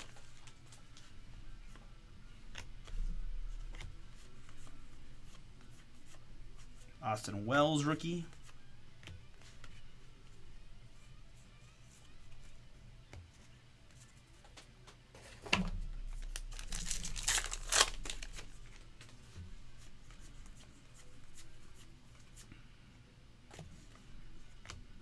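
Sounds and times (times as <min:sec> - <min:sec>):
cards rustling and ticking: 0:00.0 - 0:10.4, 0:16.1 - 0:22.6
wrapper crinkling and tearing: 0:16.2 - 0:18.8.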